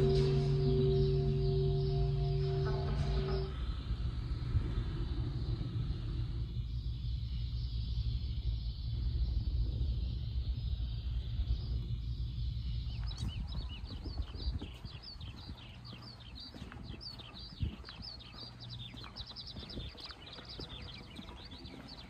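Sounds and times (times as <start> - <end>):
low rumble: 0.0 - 22.0
small birds chirping rapidly: 3.3 - 22.0
faint light footsteps: 13.0 - 22.0.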